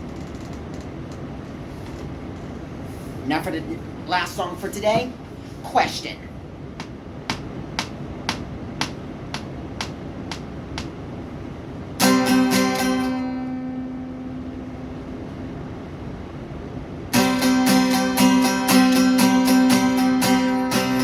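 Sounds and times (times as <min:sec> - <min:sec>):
guitar strumming: 0:12.0 - 0:16.0, 0:17.1 - 0:21.0.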